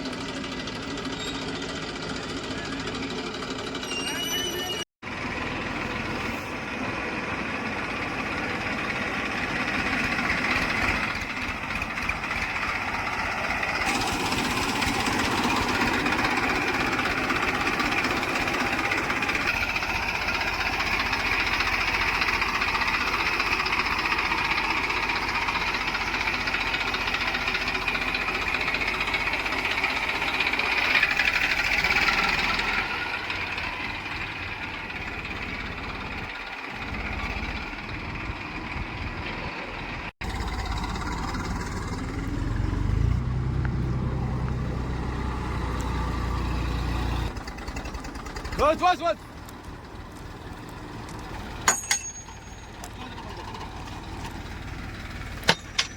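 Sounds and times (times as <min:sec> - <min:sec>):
diesel engine under load: 0:00.0 - 0:55.9.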